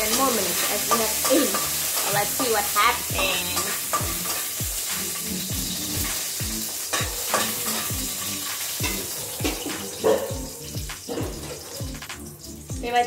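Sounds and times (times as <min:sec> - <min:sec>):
metal spatula stirring: 0:00.0 - 0:10.0
food sizzling in a wok: 0:00.0 - 0:13.0.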